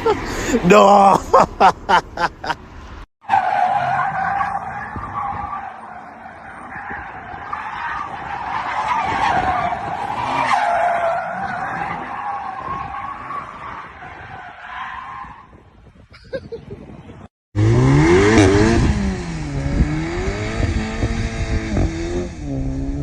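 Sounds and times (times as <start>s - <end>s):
car tyres squealing in a skid: 3.2s - 15.6s.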